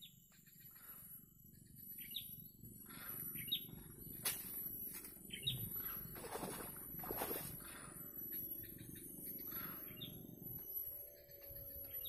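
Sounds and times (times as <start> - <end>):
bird chirping: 0.0 - 4.2, 5.2 - 6.7, 7.6 - 12.0.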